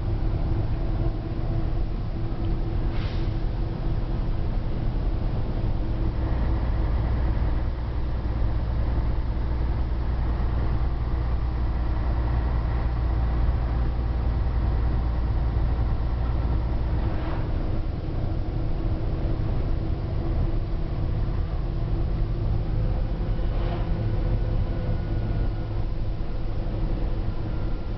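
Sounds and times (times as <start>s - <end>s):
diesel truck engine droning: 0.0s - 27.9s.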